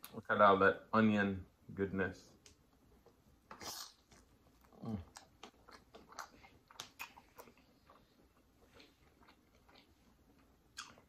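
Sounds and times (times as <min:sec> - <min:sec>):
chewing mouth noises: 0:03.5 - 0:11.0.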